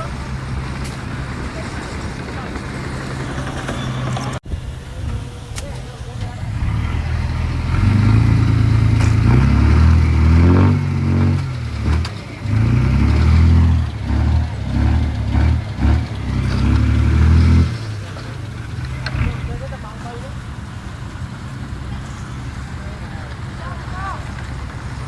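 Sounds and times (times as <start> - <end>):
heavy diesel engine revving: 0.0 - 25.0.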